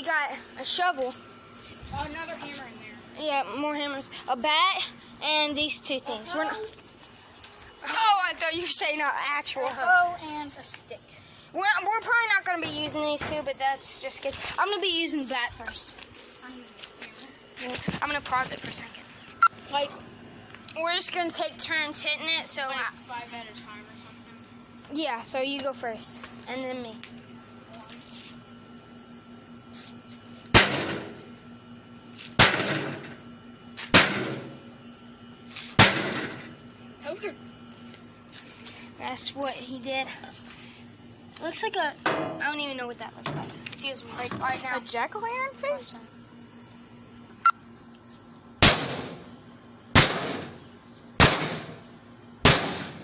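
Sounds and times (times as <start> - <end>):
blows striking metal microwave casing: 12.5 - 13.6, 30.5 - 31.2, 32.4 - 33.2, 33.9 - 34.7, 35.8 - 36.6, 42.0 - 42.6, 48.6 - 49.3, 49.9 - 53.0.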